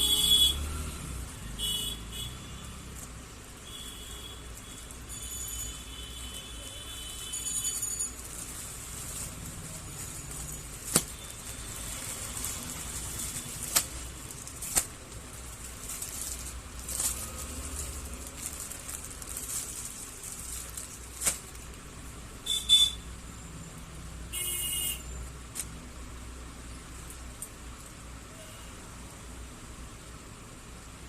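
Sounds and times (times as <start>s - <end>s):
plastic packaging rustling: 7.2s - 21.9s
plastic ripping: 8.2s - 21.8s.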